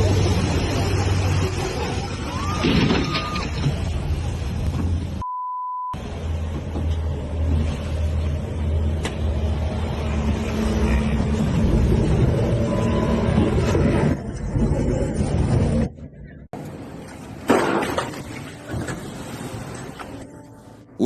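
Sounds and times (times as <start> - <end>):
censor bleep: 5.2 - 6.0.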